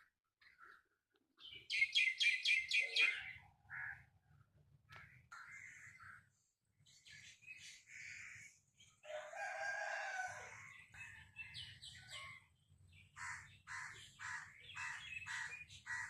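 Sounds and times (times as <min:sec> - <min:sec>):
small birds chirping: 0:00.0 - 0:04.1, 0:04.8 - 0:09.3, 0:10.5 - 0:16.0
crows cawing: 0:03.6 - 0:04.1, 0:04.9 - 0:06.3, 0:07.9 - 0:08.6, 0:13.1 - 0:16.0
rooster crowing: 0:09.0 - 0:10.6.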